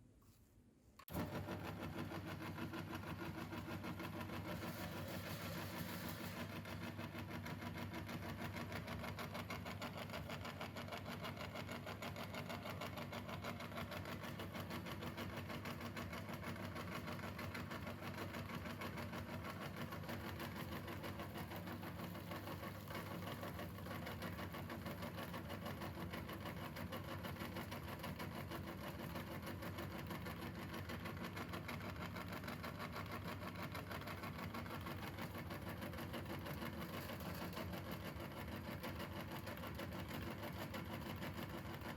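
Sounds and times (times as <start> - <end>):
electric meat grinder running: 1.1 - 41.8.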